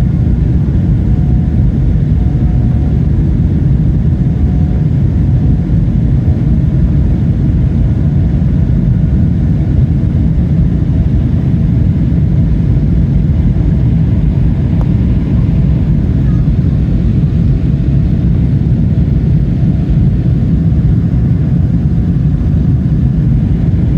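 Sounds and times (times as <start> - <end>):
jet engine cabin rumble: 0.0 - 23.9.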